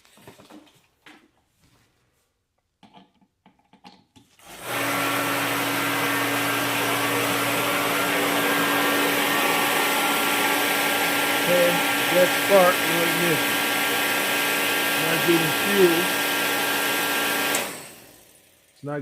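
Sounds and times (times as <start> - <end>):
heater fan motor humming: 4.5 - 18.5.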